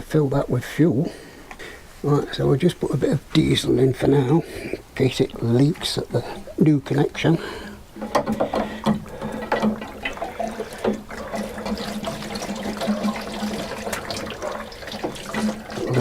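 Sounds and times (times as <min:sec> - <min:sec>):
liquid pouring into container: 0:08.8 - 0:16.0.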